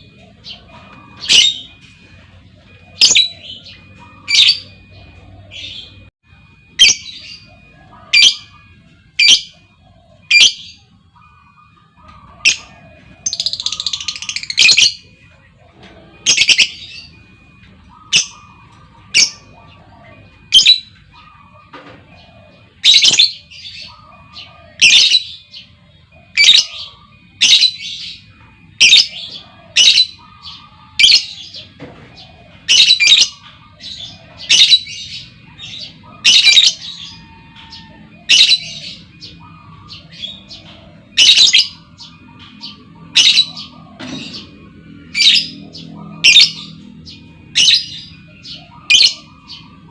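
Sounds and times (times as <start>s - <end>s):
lovebird squawking: 12.0s - 15.0s, 32.5s - 49.9s.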